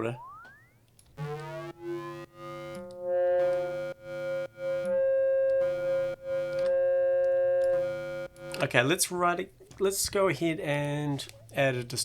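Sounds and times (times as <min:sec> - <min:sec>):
synthesized foghorn bass: 0:01.2 - 0:08.7.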